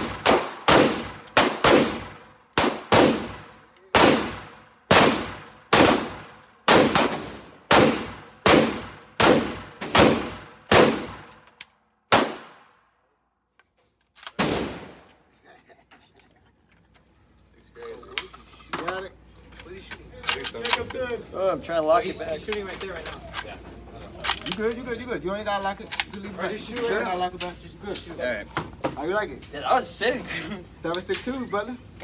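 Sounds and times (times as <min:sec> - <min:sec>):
pistol gunshots with ringing tail: 0:00.0 - 0:11.3, 0:12.1 - 0:12.6, 0:14.4 - 0:15.0.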